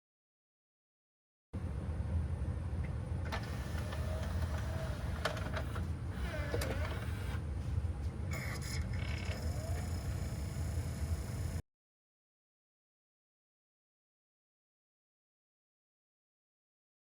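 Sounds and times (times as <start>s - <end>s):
motor hum: 3.2s - 11.6s
short motor whines: 3.3s - 7.4s, 8.3s - 11.6s.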